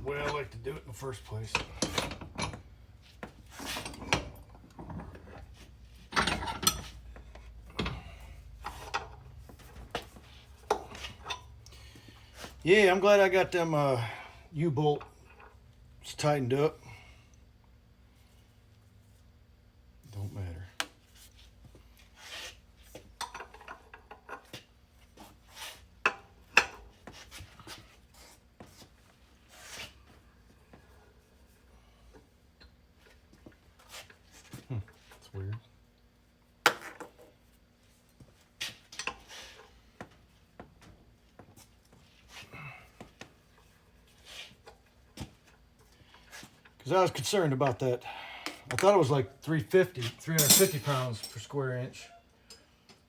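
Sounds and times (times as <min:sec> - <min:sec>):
hand tools and metal parts knocking: 0:01.4 - 0:05.5, 0:06.1 - 0:09.2, 0:50.3 - 0:51.5
hand tools clicking: 0:50.4 - 0:51.3.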